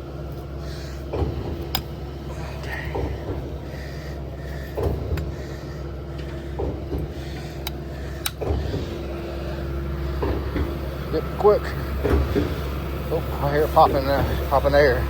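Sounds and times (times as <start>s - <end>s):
concrete pump engine hum: 0.0s - 15.0s
rhythmic pump stroke knock: 2.7s - 9.4s, 10.0s - 13.3s.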